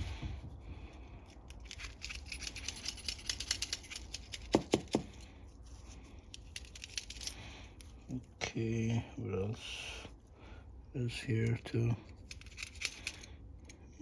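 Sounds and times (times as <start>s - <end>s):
tool clicking and scratching: 1.3s - 8.0s, 11.4s - 14.0s.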